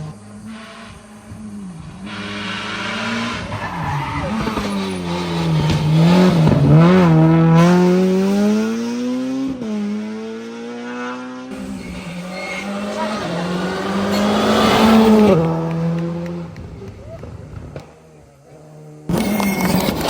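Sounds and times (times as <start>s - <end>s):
rally car passing at speed: 0.0s - 20.0s.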